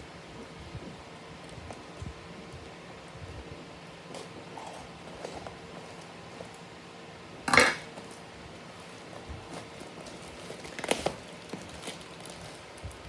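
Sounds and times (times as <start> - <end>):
cardboard package scraping rustle: 8.6 - 12.8.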